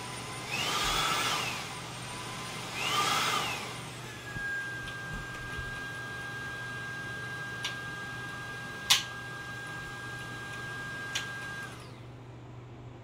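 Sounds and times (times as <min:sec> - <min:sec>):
vacuum cleaner whining: 0:00.0 - 0:12.2.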